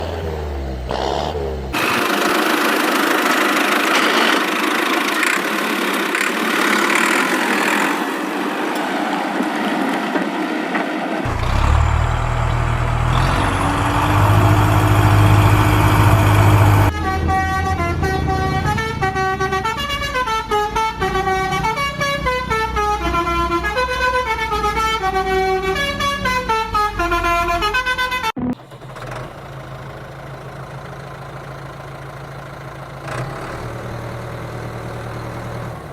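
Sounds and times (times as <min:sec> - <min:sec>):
cartoon vehicle rumble: 0:11.2 - 0:16.9
low engine hum: 0:11.3 - 0:16.9
horn blast: 0:11.3 - 0:17.5.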